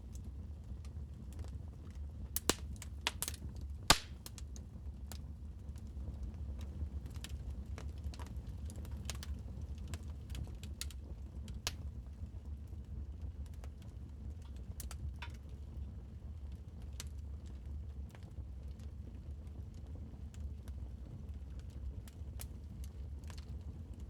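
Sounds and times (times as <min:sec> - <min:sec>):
wood fire crackling: 0:00.1 - 0:12.6, 0:19.8 - 0:24.0.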